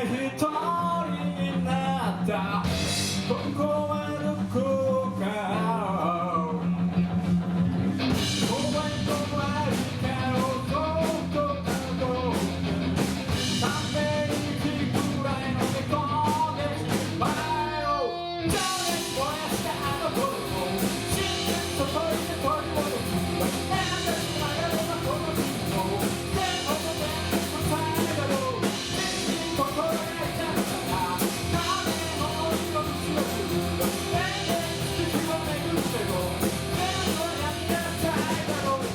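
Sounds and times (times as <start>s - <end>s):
rock guitar and drums: 0.0s - 38.9s
person singing: 13.5s - 38.9s.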